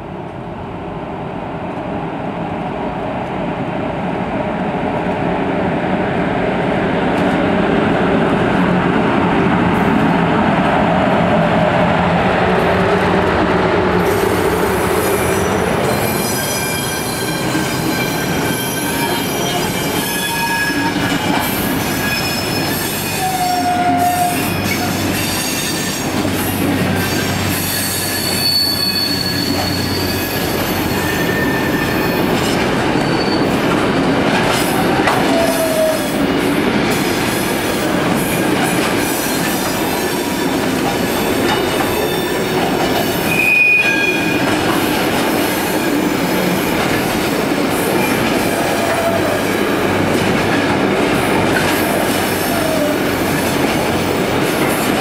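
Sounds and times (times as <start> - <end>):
freight train wheels rumbling: 0.0 - 55.0
wheel squeals: 27.0 - 33.6, 43.2 - 44.6.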